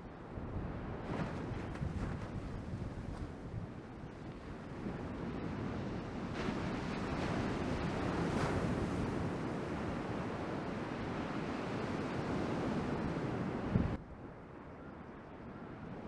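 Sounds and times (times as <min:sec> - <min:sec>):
wind buffeting microphone: 0:00.0 - 0:16.0
ocean surf and rushing water: 0:03.8 - 0:14.4.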